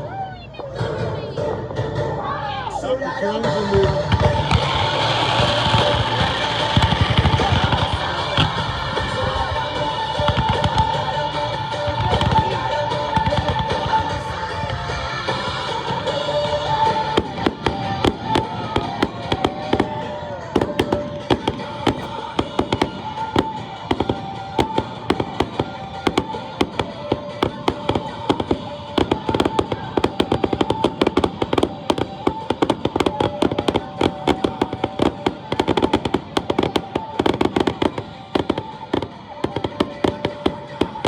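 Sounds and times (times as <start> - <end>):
music with long held notes: 0.0 - 41.0
fireworks crackling pops: 3.8 - 41.0.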